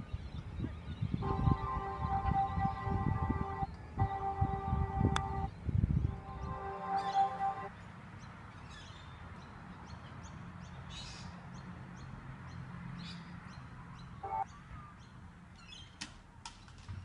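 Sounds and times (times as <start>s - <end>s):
short tone: 1.2s - 5.5s
low hum: 1.2s - 7.7s
small birds chirping: 5.5s - 16.8s.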